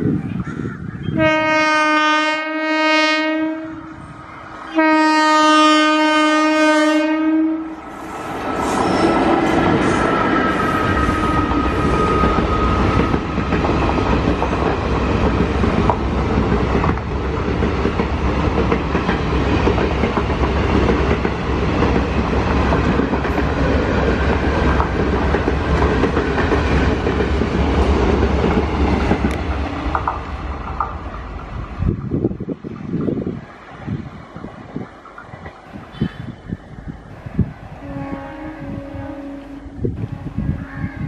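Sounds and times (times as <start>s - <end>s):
express train passing: 0.0s - 41.0s
train horn: 1.1s - 8.1s, 9.9s - 13.3s, 37.8s - 41.0s.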